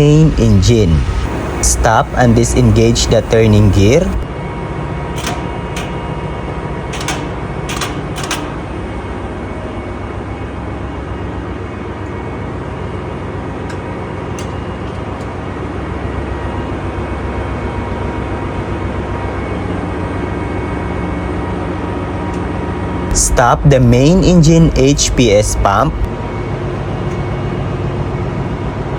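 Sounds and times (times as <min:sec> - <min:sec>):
engine room machinery drone: 0:00.0 - 0:28.9
sharp metallic clicks: 0:05.0 - 0:06.3, 0:06.9 - 0:08.8.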